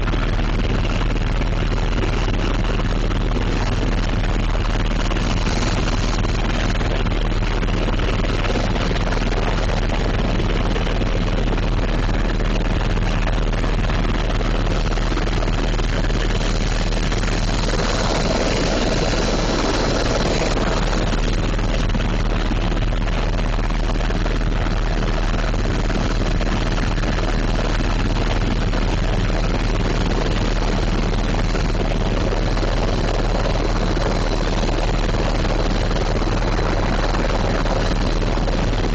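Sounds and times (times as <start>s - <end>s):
helicopter rotor and turbine noise: 0.0s - 38.9s.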